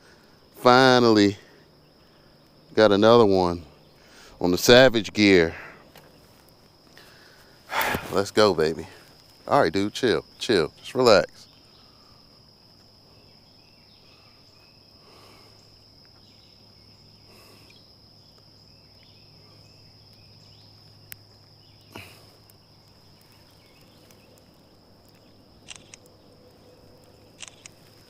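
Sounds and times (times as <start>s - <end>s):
sharp click: 25.7s - 26.1s, 27.4s - 27.8s.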